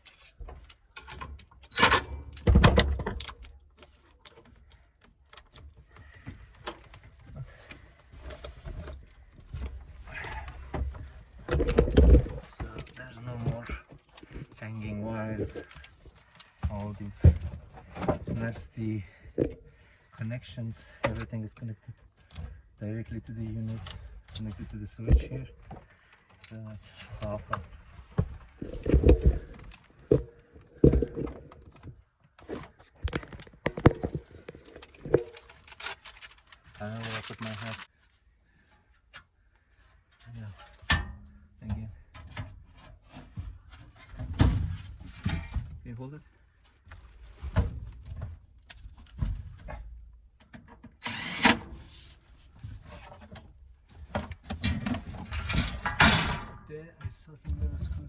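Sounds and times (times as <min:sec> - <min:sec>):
objects knocking and clattering: 0:05.6 - 0:14.6, 0:27.2 - 0:36.4, 0:54.0 - 0:56.7.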